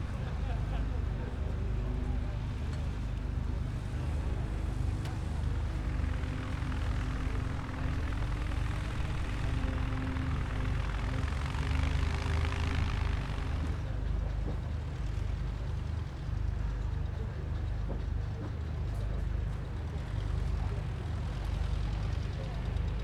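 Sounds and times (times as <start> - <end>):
propeller aircraft passing: 0.0 - 17.0.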